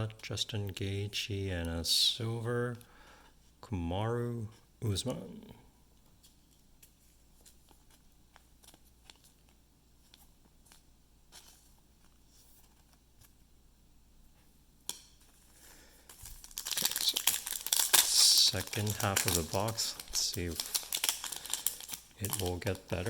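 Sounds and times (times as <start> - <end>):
foil wrapper crinkling: 15.2 - 23.0.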